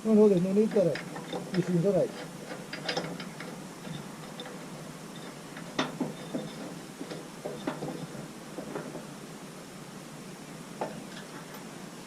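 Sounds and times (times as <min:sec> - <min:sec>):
faint steady hiss: 0:00.0 - 0:12.0
hand tools clicking on metal: 0:00.3 - 0:09.0.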